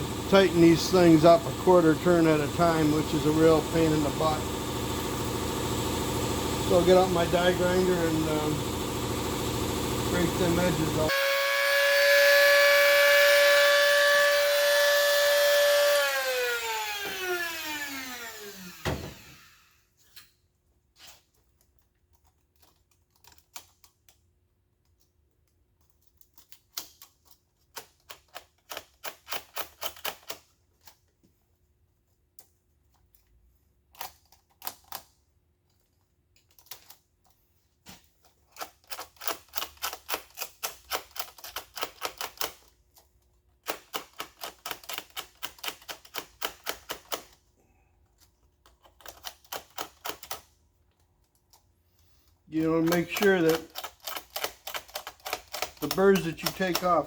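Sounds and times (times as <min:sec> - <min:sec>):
die grinder winding down: 0:00.0 - 0:19.8
hand deburring tool strokes: 0:00.3 - 0:04.4.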